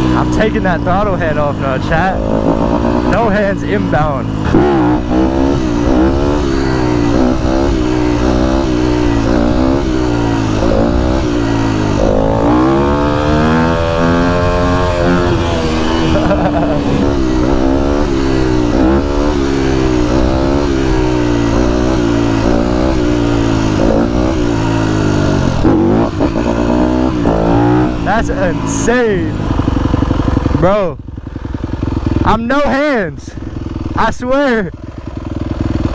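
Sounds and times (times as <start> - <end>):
dirt bike engine revving: 0.0 - 35.9.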